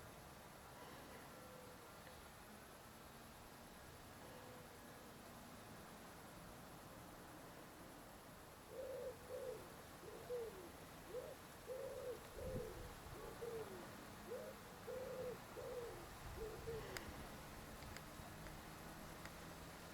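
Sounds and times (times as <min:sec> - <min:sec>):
bird cooing: 0:00.8 - 0:01.9, 0:08.7 - 0:17.4.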